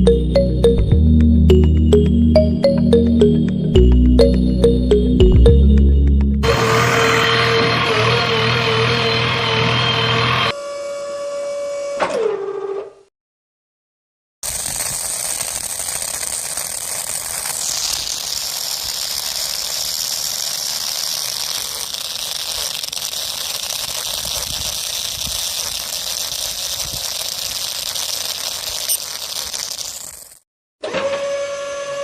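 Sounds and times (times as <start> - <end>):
small electric motor whining: 6.4 - 11.8, 14.5 - 30.4.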